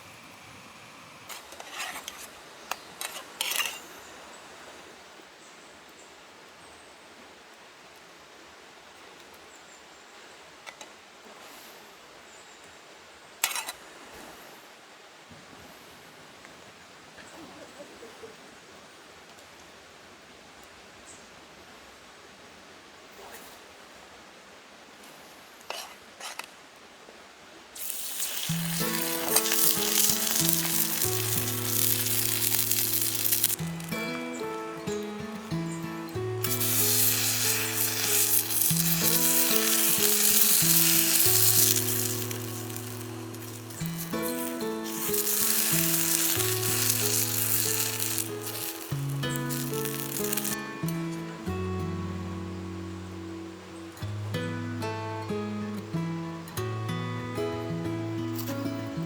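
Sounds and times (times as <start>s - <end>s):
food sizzling on a griddle: 0.0s - 3.9s, 13.4s - 13.7s, 27.8s - 53.2s, 54.0s - 59.0s
outdoor background noise: 0.0s - 59.0s
background music: 28.6s - 59.0s.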